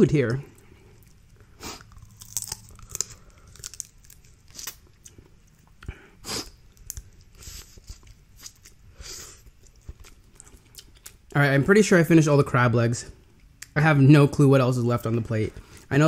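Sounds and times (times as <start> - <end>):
chewing: 0.4 - 6.0, 6.7 - 11.3
crab shells cracking: 1.8 - 5.0.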